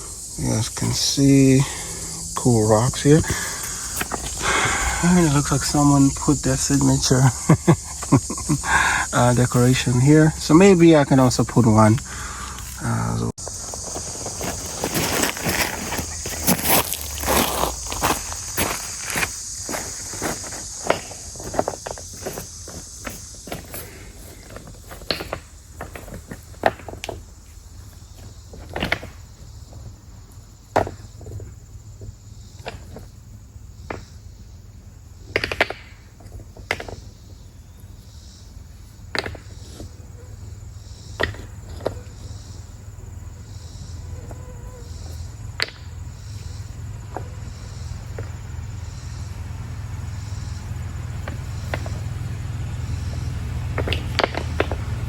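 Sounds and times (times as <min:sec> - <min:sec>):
stones clacking together: 0:03.2 - 0:07.2, 0:10.5 - 0:27.3, 0:28.2 - 0:29.8, 0:30.7 - 0:33.2, 0:35.3 - 0:37.3, 0:39.1 - 0:39.9, 0:41.1 - 0:42.0, 0:51.2 - 0:52.1, 0:53.1 - 0:55.0.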